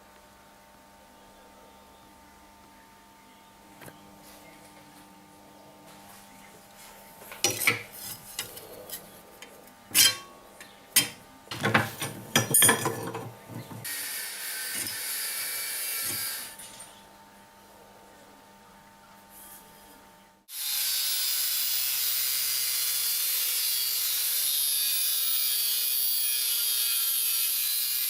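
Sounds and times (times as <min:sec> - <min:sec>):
metal tools knocking and clanking: 0:07.3 - 0:13.8.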